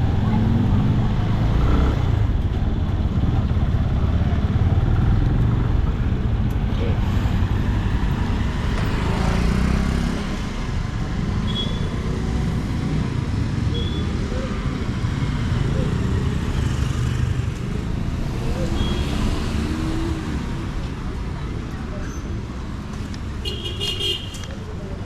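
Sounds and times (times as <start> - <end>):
road and traffic noise: 0.0 - 25.0.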